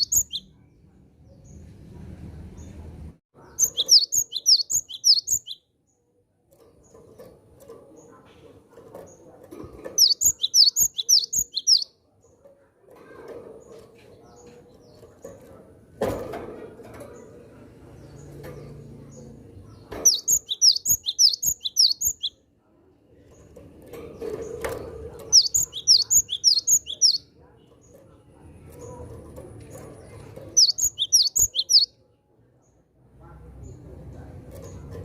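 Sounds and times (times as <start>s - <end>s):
bird rapid high chirps: 0.0s - 0.6s, 3.4s - 5.6s, 10.0s - 11.9s, 20.0s - 22.4s, 25.3s - 27.3s, 30.5s - 31.9s.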